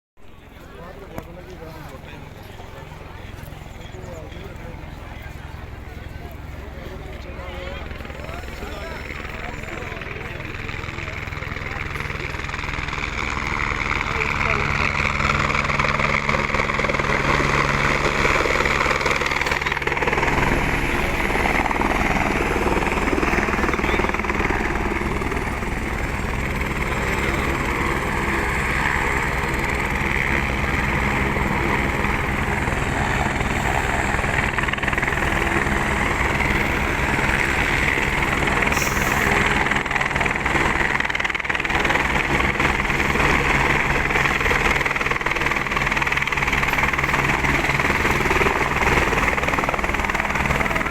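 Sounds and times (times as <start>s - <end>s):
helicopter rotor chop: 0.4s - 50.9s
turbine whine: 0.9s - 50.9s.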